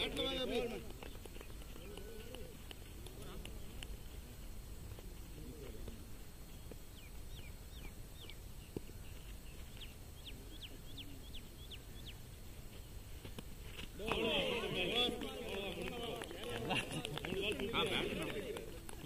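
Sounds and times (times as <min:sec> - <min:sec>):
bird chirping: 0:06.5 - 0:12.3.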